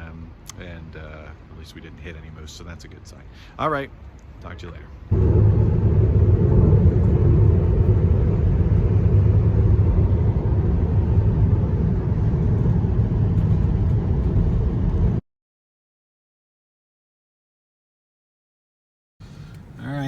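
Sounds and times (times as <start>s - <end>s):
car road and wind noise: 5.0s - 15.2s, 19.2s - 20.0s.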